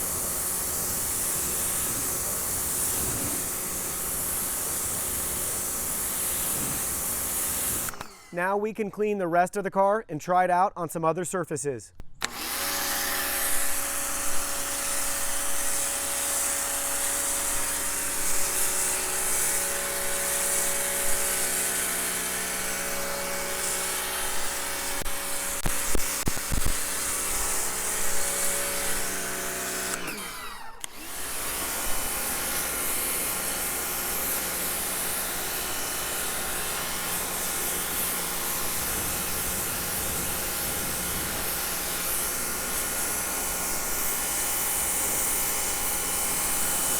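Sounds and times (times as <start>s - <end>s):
water spray hissing: 0.0s - 7.9s, 31.6s - 46.9s
pressure washer motor humming: 0.0s - 8.4s, 12.2s - 46.9s.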